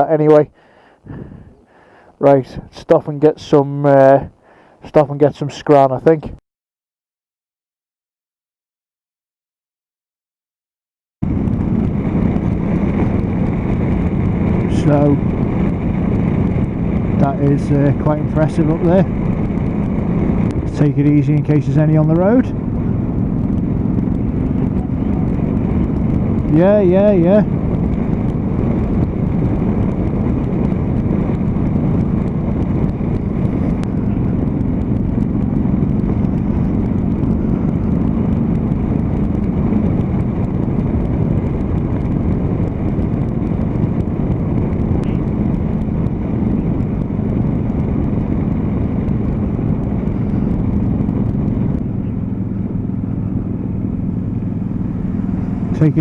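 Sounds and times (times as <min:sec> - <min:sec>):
road noise: 0:00.0 - 0:06.4, 0:11.2 - 0:56.0
wind noise: 0:00.0 - 0:06.4, 0:11.2 - 0:56.0
motorcycle engine cruising: 0:11.2 - 0:56.0.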